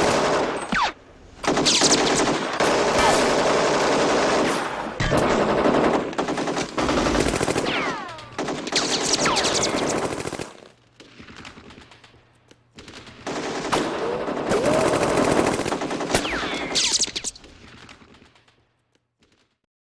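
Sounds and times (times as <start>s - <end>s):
automatic machine-gun fire: 1.4s - 12.0s, 12.8s - 16.8s.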